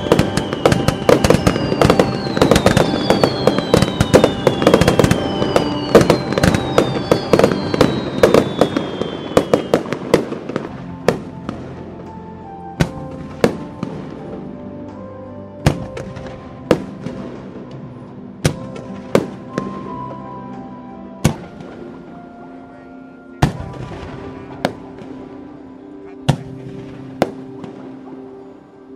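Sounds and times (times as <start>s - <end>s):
falling firework whistles: 0.0s - 10.4s
fireworks bangs and crackles: 0.0s - 12.2s, 12.8s - 14.6s, 15.6s - 20.3s, 21.2s - 21.9s, 23.4s - 28.5s
background music: 0.0s - 28.9s.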